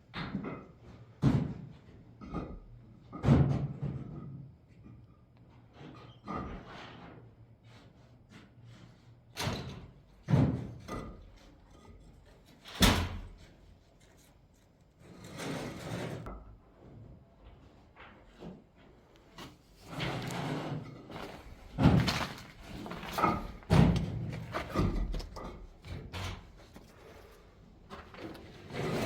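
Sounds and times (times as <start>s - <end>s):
knocks and thuds: 21.6s - 26.3s.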